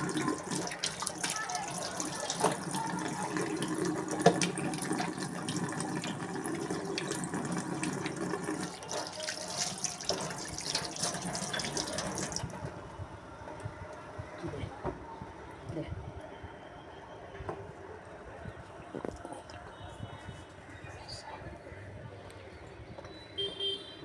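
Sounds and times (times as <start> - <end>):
tap water running and splashing: 0.0 - 12.8.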